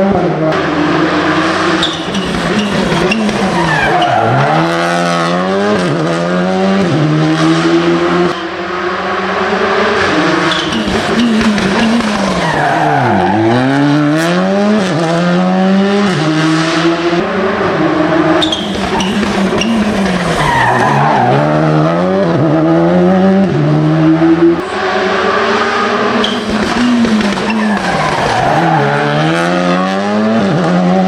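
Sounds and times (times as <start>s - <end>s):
rally car engine revving: 0.0s - 31.0s
quick gear changes: 1.6s - 4.9s, 9.8s - 14.1s, 18.0s - 21.6s, 25.3s - 29.6s.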